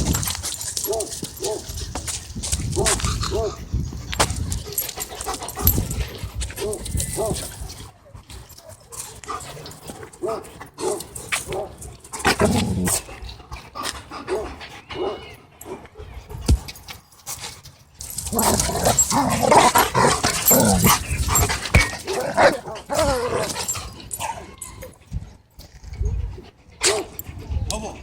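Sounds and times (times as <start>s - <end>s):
dogs barking: 0.8s - 1.6s, 10.2s - 11.8s
dogs wrestling: 16.6s - 25.0s.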